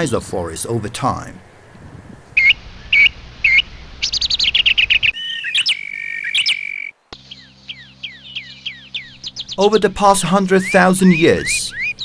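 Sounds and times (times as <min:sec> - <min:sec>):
songbirds chirping: 0:00.0 - 0:12.0
whistled bird note: 0:02.4 - 0:09.6, 0:10.6 - 0:12.0.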